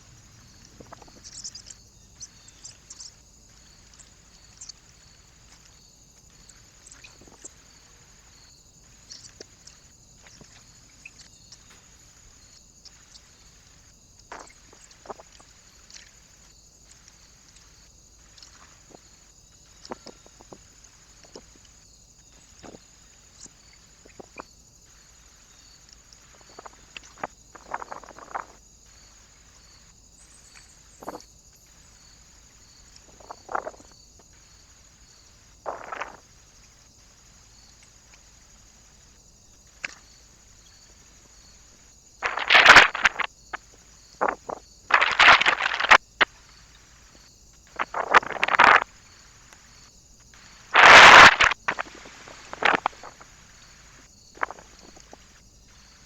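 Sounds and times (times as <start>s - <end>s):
birds tapping: 0.0s - 24.4s, 42.2s - 46.0s
wings rustling: 42.2s - 43.3s, 44.9s - 46.0s, 50.8s - 53.2s.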